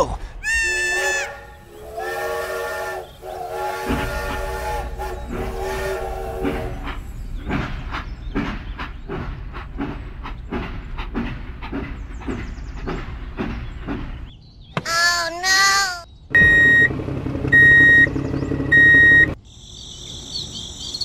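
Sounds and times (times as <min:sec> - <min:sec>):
steam whistle: 0:00.5 - 0:07.0
steam train chuffing: 0:00.6 - 0:14.3.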